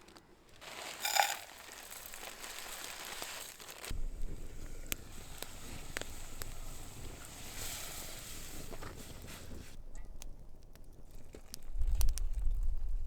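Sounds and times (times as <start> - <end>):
food packaging crinkling: 0.0 - 4.0
sharp crackle: 0.0 - 13.0.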